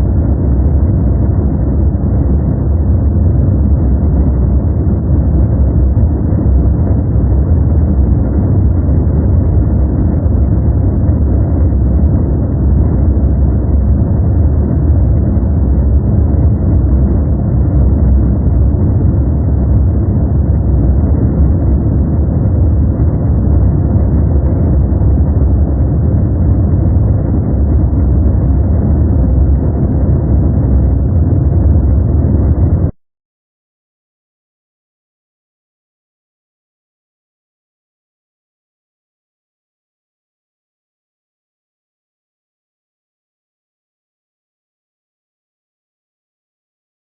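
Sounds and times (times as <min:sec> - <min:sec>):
deep rumbling white noise: 0:00.0 - 0:33.0.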